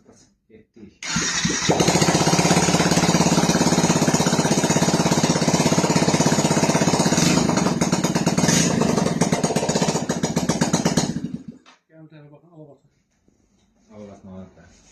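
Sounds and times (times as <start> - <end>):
motorcycle engine idling: 1.4 - 11.6.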